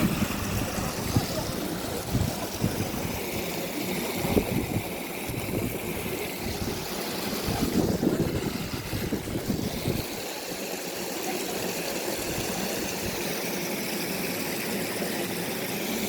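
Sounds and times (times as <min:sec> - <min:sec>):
wind gusts on microphone: 0:00.0 - 0:03.3, 0:04.2 - 0:10.2.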